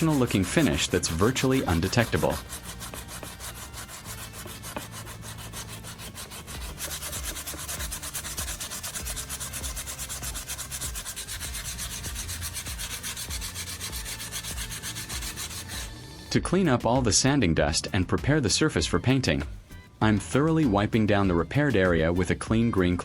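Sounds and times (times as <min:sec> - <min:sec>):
sanding pad rubbing plastic: 0:00.0 - 0:16.0.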